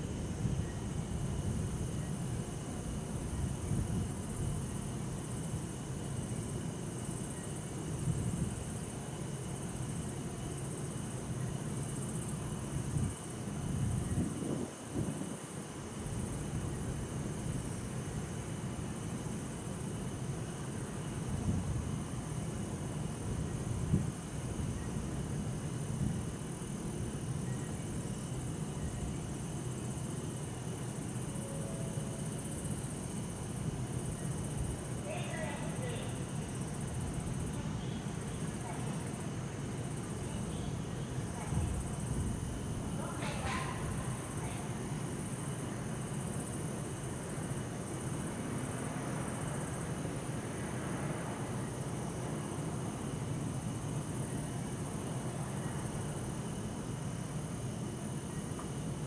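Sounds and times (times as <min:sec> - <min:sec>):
crickets and insects chirping: 0:00.0 - 0:59.0
distant traffic rumble: 0:32.2 - 0:56.8.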